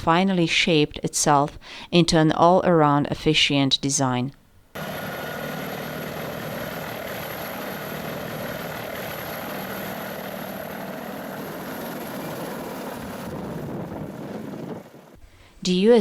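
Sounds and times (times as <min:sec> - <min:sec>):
helicopter turbine engines running: 0:04.8 - 0:15.2.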